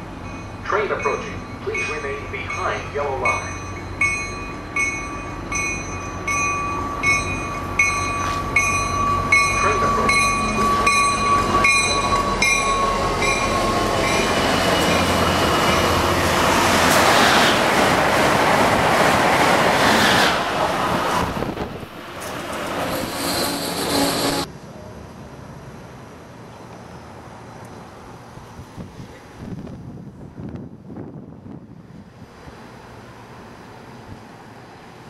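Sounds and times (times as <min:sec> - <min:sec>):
train rushing past: 0:00.0 - 0:35.0
bell ringing: 0:00.2 - 0:15.8.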